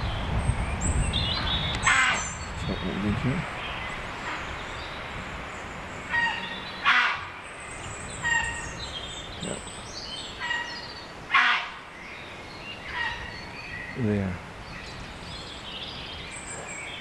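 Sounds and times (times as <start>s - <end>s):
songbirds chirping: 0.0s - 17.0s
harsh bird call: 1.2s - 5.1s, 6.0s - 12.0s, 12.7s - 14.4s.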